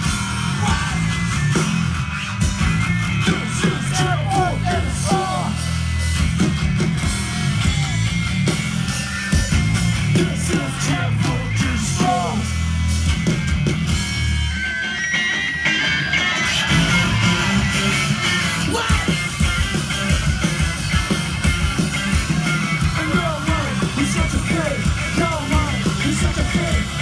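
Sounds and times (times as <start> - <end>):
shouted vocals: 0.0 - 1.3, 3.2 - 5.8, 10.2 - 12.6, 16.1 - 19.5
distorted guitar and bass: 0.0 - 27.0
punk band playing live: 0.0 - 27.0.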